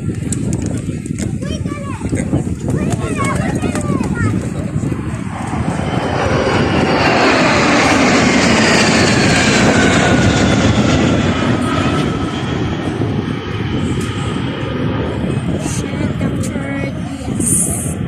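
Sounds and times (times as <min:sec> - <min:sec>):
airplane flying past: 0:03.0 - 0:18.0.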